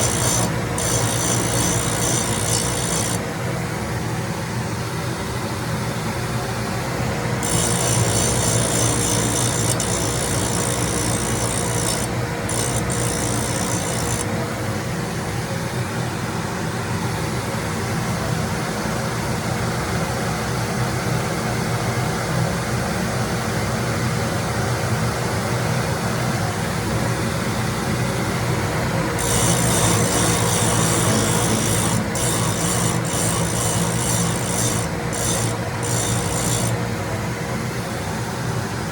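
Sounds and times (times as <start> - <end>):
grinding hiss: 0.0 - 3.2, 7.4 - 14.3, 29.2 - 36.8
grinder humming: 0.0 - 3.3, 7.1 - 14.5, 28.6 - 37.2.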